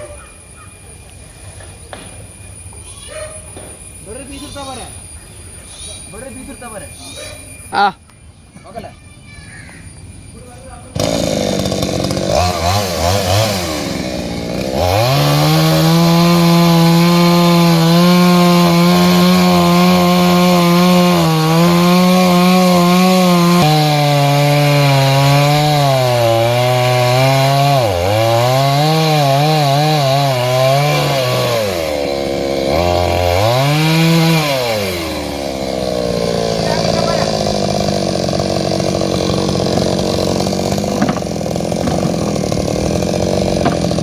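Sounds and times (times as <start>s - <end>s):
chainsaw cutting wood: 10.9s - 44.0s.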